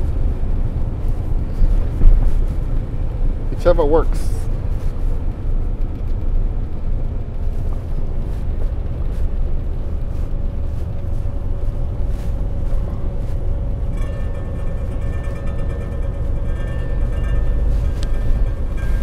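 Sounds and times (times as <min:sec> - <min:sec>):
truck engine and road drone: 0:00.0 - 0:19.0.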